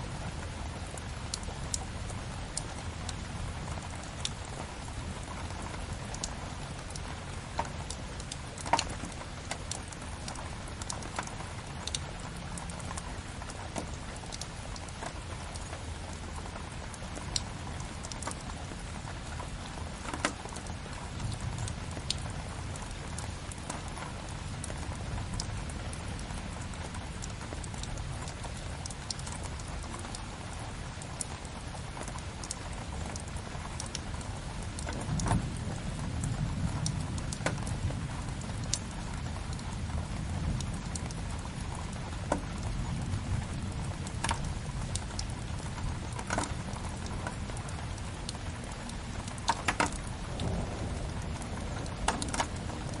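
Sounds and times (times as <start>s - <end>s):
steady rain: 0.0s - 53.0s
wood fire crackling: 48.0s - 53.0s.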